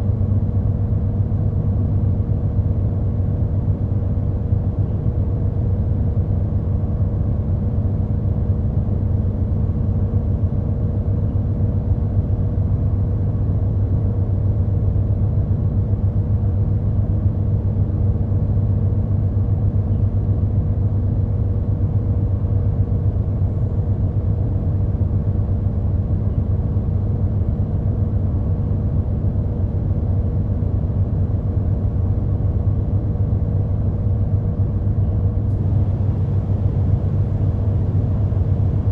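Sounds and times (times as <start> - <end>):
bus engine humming: 35.0 - 38.9.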